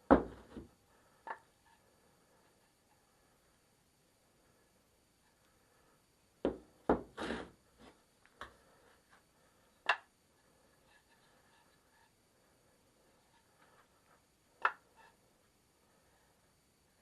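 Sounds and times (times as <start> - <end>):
sharp knocks on workbench: 0.1 - 0.7, 6.4 - 7.1.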